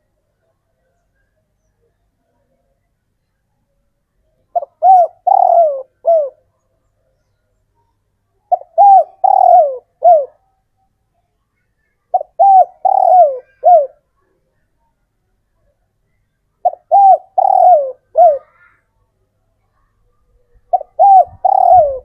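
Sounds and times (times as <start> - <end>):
dove cooing: 4.5 - 6.4, 8.5 - 10.4, 12.1 - 14.0, 16.6 - 18.6, 20.7 - 22.0.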